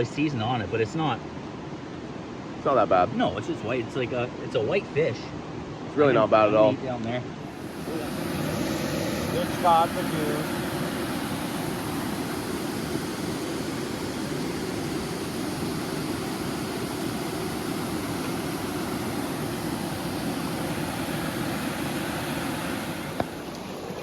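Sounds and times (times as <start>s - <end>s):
waterfall rushing: 7.5s - 24.0s.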